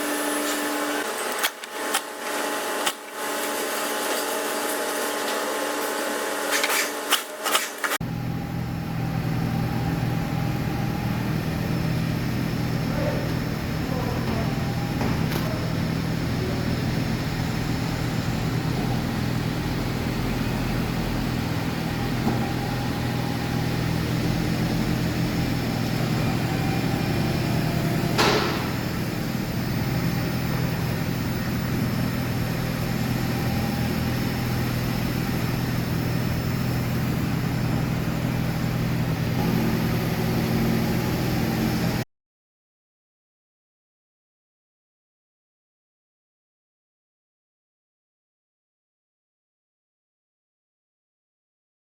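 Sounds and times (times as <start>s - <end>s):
car engine drone: 7.9s - 42.0s.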